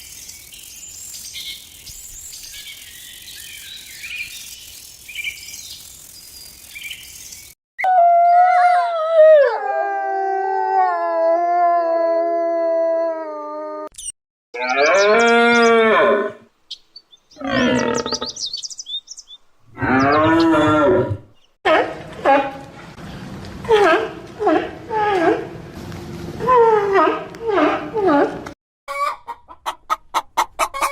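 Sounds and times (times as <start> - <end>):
birds chirping: 0.0 - 7.6, 14.6 - 15.9, 16.6 - 21.6
insects chirping: 0.0 - 7.6
cattle mooing: 17.4 - 18.3, 19.7 - 21.2.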